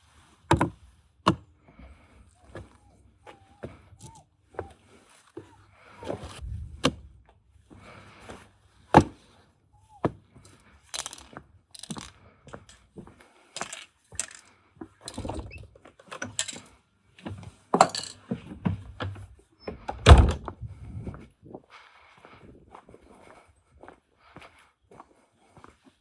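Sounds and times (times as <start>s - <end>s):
metal tools clinking and clattering: 10.9s - 12.8s, 13.6s - 16.7s, 17.8s - 18.3s.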